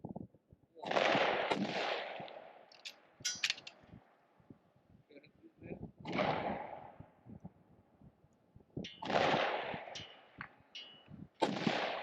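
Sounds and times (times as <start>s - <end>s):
rifle shots: 0.8s - 2.2s, 9.0s - 10.0s, 11.4s - 12.0s.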